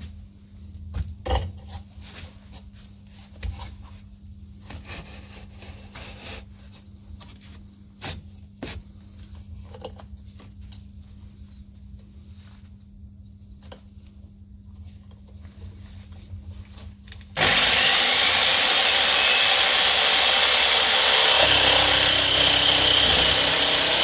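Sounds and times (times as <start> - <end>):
jigsaw motor hum: 17.4 - 24.0.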